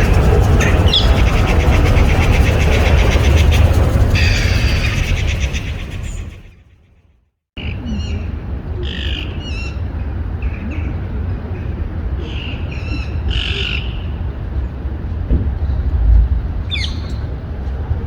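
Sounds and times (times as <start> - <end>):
birds calling harshly: 0.0 - 6.6
steady low rumble: 0.0 - 6.7, 14.0 - 18.0.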